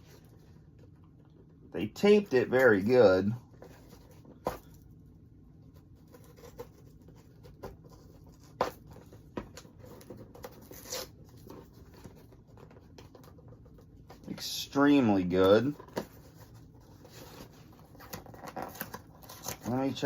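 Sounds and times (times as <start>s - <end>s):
tape tearing and scraping: 10.4s - 11.2s, 18.0s - 19.8s
hands scratching at packing tape: 10.5s - 11.1s.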